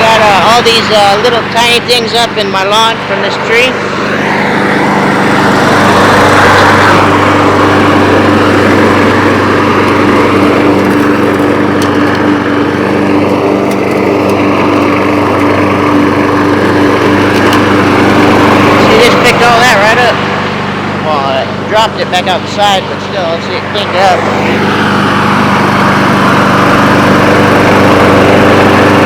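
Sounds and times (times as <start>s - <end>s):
lawn mower engine running: 0.0s - 29.0s
mower blade chopping debris: 9.4s - 18.1s.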